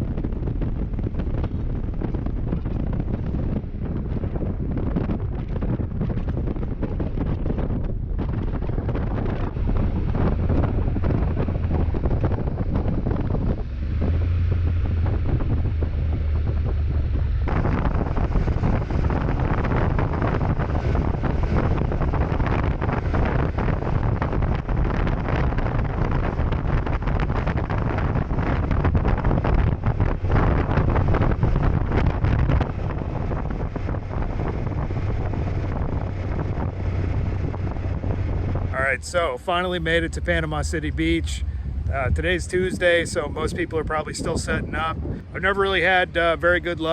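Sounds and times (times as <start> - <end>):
motorcycle engine drone: 0.0 - 46.9
wind buffeting microphone: 0.0 - 46.9.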